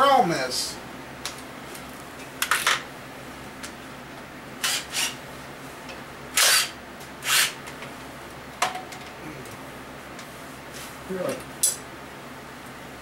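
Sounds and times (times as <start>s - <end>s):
power tool bursts: 6.4s - 7.6s.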